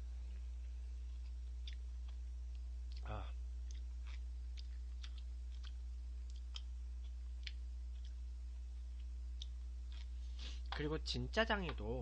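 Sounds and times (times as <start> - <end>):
low electrical hum: 0.0 - 12.0
person chewing noodles: 1.0 - 10.8
wet mouth clicks and smacks: 1.6 - 8.2.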